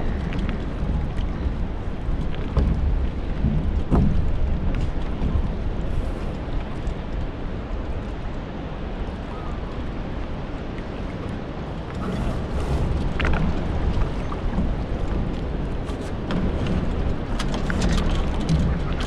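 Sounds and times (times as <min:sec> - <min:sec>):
water rushing past boat: 0:00.0 - 0:19.0
wind buffeting microphone: 0:00.0 - 0:19.0.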